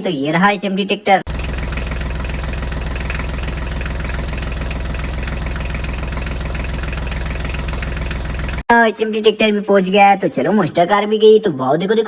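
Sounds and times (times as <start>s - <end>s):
tractor engine idling: 1.2s - 8.6s.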